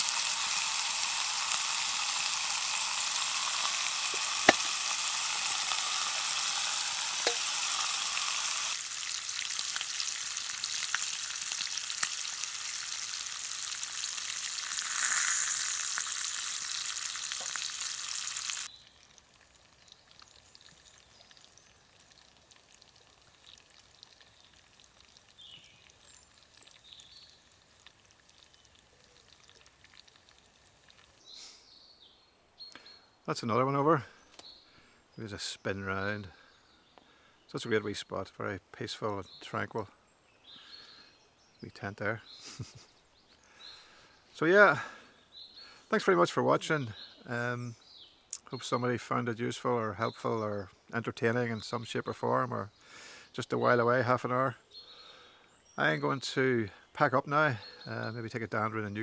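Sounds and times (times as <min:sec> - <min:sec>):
sausages sizzling in frying pan: 0:00.0 - 0:28.6
utensil clicking against pan: 0:07.2 - 0:08.4.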